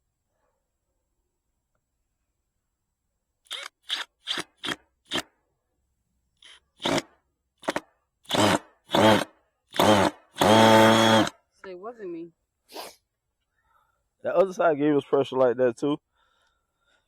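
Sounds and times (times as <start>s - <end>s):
power drill whirring: 3.5s - 5.3s, 6.4s - 11.3s.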